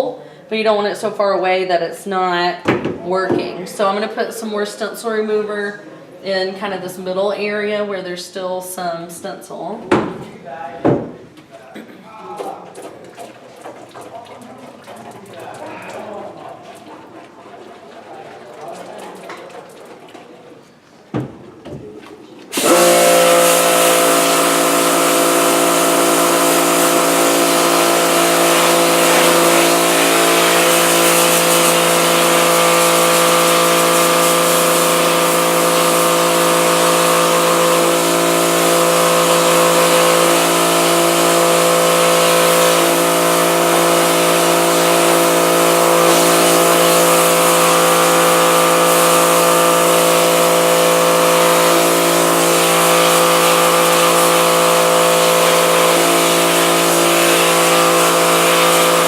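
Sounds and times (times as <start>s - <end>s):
water jet hissing: 12.2s - 21.5s, 22.1s - 59.0s
pressure washer motor hum: 12.4s - 59.0s.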